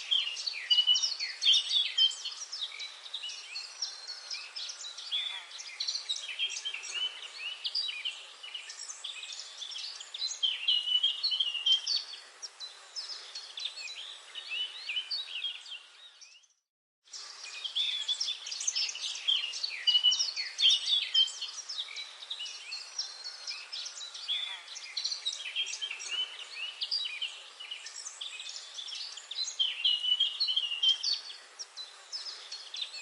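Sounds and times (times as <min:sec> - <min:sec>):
birds chirping and trilling: 0:00.0 - 0:33.0.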